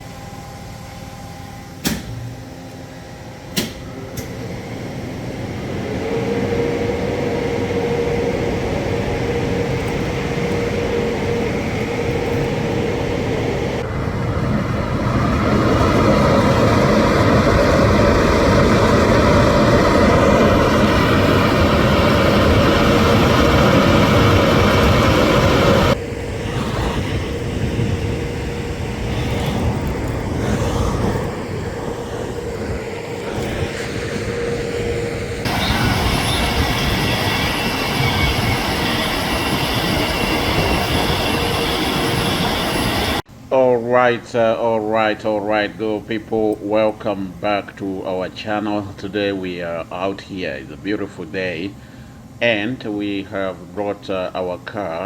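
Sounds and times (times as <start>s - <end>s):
car wash machinery whirring and spraying: 0.0s - 43.8s
constant hum: 0.0s - 55.0s.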